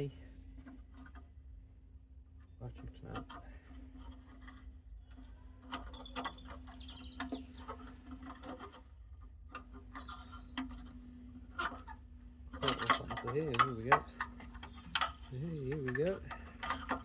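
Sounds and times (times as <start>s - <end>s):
metal parts clicking and knocking: 12.5s - 17.0s.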